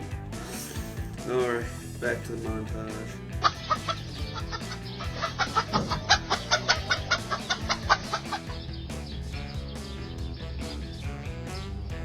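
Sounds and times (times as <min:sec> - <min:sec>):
background music: 0:00.0 - 0:12.0
chicken clucking: 0:03.4 - 0:08.7.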